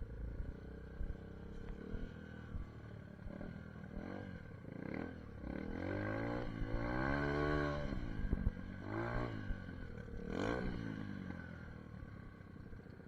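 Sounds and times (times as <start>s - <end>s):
dirt bike engine revving: 3.3s - 11.2s.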